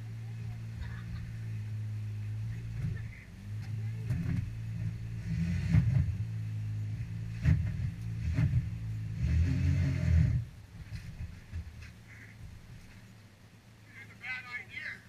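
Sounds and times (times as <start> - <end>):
atv engine running: 0.0 - 14.4
sharp knocks and thumps: 2.6 - 13.0.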